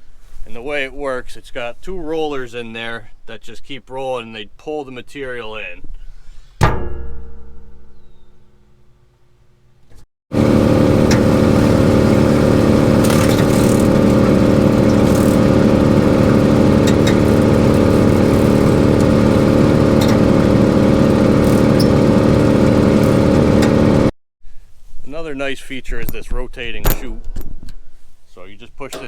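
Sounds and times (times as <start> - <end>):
wood chipper running: 10.3 - 24.1.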